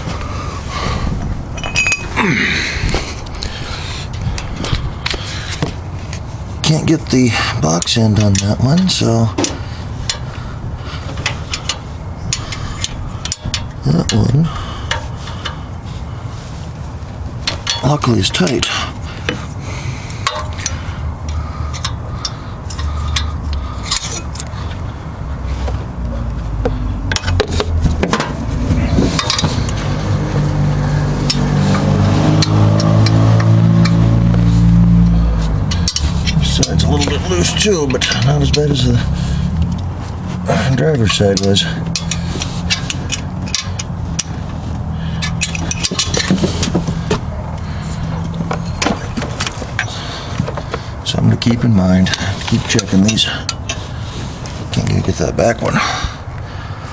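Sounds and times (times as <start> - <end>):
steady low hum: 0.0 - 56.9
wrench clinking on metal bolts: 1.5 - 2.2, 17.4 - 18.8, 20.2 - 20.8, 40.7 - 46.8
low droning tone: 19.5 - 41.0.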